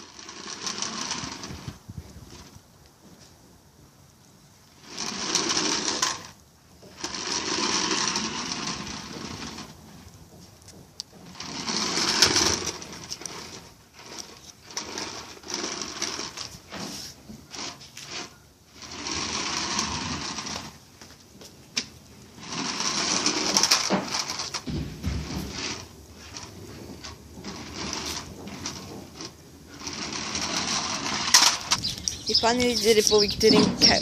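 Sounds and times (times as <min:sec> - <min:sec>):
toy car motor whirring: 0:00.0 - 0:01.8, 0:04.8 - 0:09.7, 0:11.3 - 0:20.8, 0:22.4 - 0:24.6, 0:25.4 - 0:34.0.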